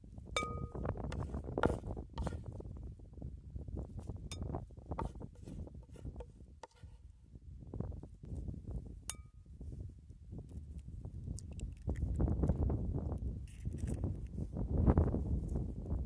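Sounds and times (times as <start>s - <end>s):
ringing clink: 0.4s - 0.9s.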